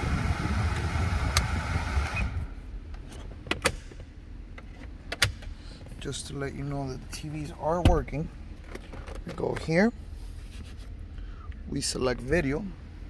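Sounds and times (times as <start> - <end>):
car cabin blower noise: 0.0 - 8.8
sharp clicks of cabin controls: 0.7 - 2.2, 2.9 - 6.0.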